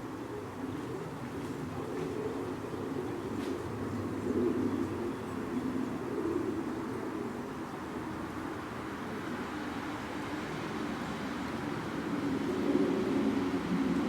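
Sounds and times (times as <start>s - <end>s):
dove cooing: 0.0s - 8.2s.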